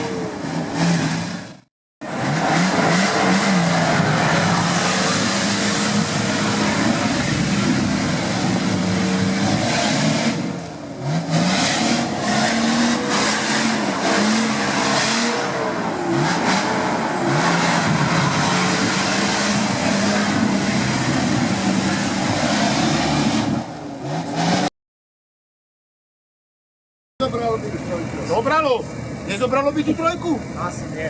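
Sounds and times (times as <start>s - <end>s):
off-road engine revving: 0.0s - 24.7s.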